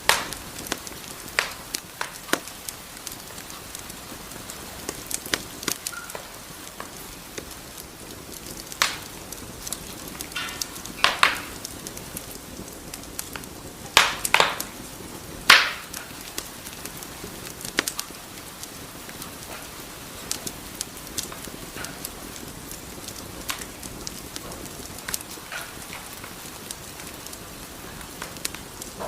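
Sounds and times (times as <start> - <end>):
wood fire crackling: 0.0 - 29.0
faint whistle: 5.9 - 6.2.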